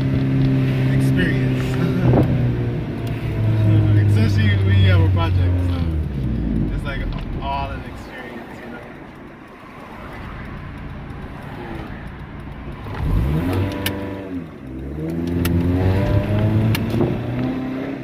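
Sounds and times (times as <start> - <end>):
car engine revving: 0.0 - 18.0
sharp clicks: 6.3 - 14.0, 14.6 - 17.5.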